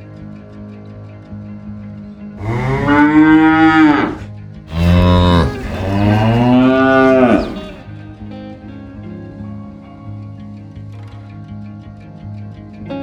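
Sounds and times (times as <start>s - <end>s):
cow mooing: 2.4s - 7.8s.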